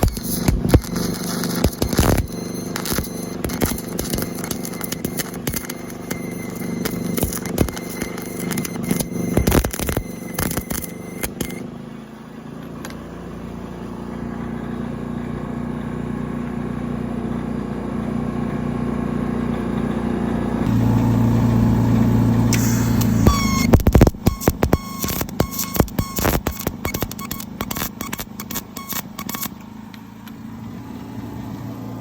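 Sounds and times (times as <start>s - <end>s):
welding arc crackling: 0.0s - 11.6s, 20.7s - 29.6s
engine welder running: 0.0s - 32.0s.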